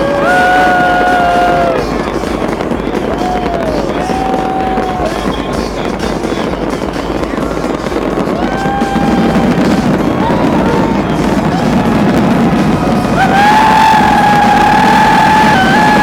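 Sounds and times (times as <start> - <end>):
fireworks crackling and popping: 0.0 - 16.0
noisy crowd: 0.0 - 16.0
rising whistle-like tones: 7.1 - 16.0.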